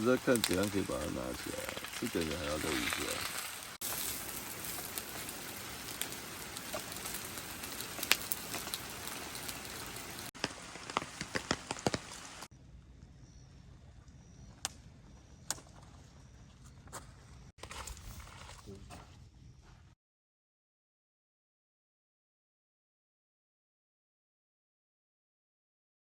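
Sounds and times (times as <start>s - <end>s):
sharp raindrops: 0.0s - 12.5s
steady rain: 0.0s - 12.5s.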